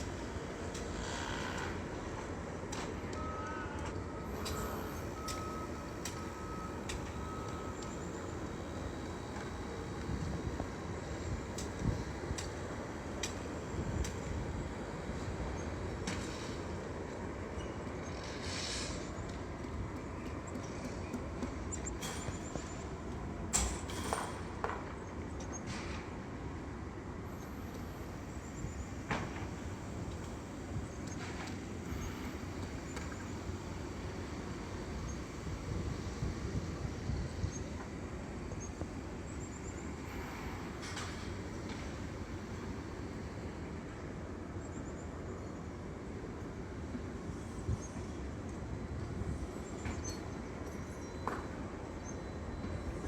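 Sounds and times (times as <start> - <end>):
low rumble of engines and traffic: 0.0 - 53.0
vehicle backup alarm beeping: 3.1 - 9.5.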